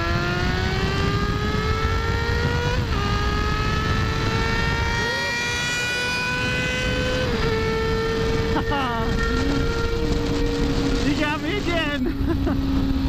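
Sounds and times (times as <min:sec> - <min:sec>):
wind rush on microphone: 0:00.0 - 0:05.1
motorcycle engine accelerating: 0:00.0 - 0:13.0.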